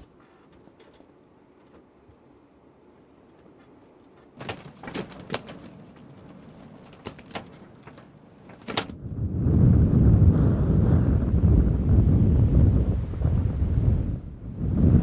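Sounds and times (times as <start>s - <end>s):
wind buffeting microphone: 5.8s - 15.0s.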